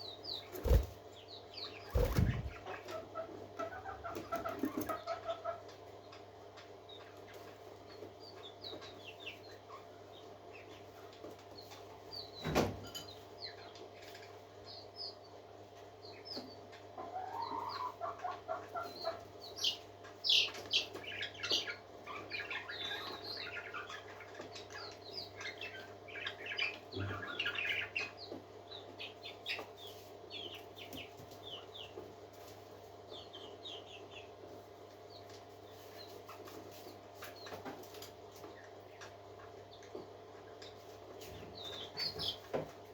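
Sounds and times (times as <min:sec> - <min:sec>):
parakeets chirping and chattering: 0:00.1 - 0:10.9, 0:18.0 - 0:31.9
steady low hum: 0:00.3 - 0:02.9.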